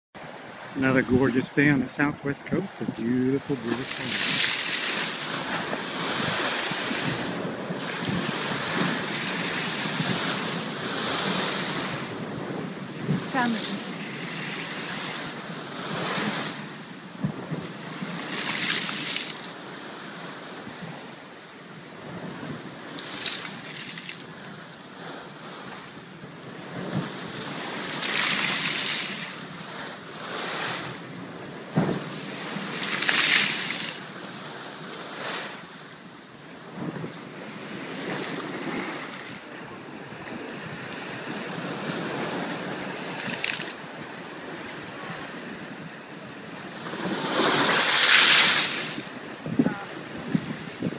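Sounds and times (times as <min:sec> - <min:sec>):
wind buffeting microphone: 0:00.2 - 0:23.7, 0:36.0 - 0:50.9
waves breaking against seawall: 0:00.2 - 0:50.9.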